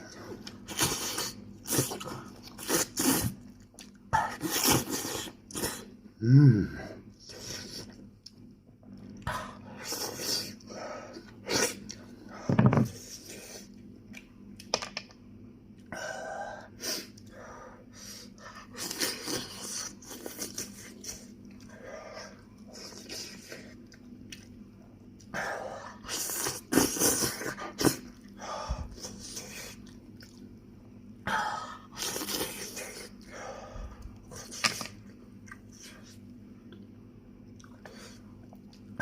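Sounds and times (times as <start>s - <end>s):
person chewing crispy food: 29.0s - 30.6s.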